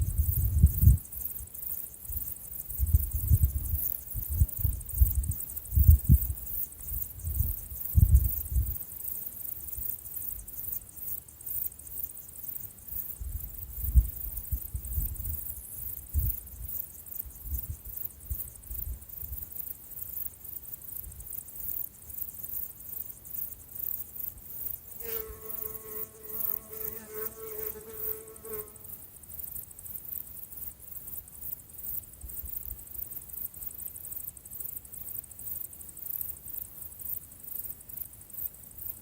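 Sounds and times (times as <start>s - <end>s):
insects trilling: 0.0s - 39.0s
fly buzzing: 25.0s - 28.9s.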